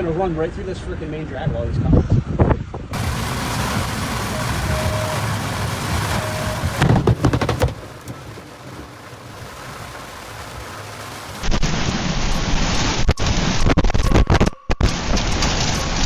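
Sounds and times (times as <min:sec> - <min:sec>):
storm rain and wind: 0:00.0 - 0:16.0
clattering knocks: 0:06.8 - 0:08.3.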